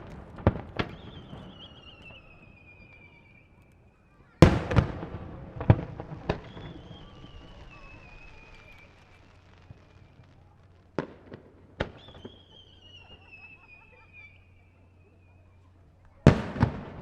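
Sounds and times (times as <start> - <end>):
high wavering whistle: 6.3 - 9.2.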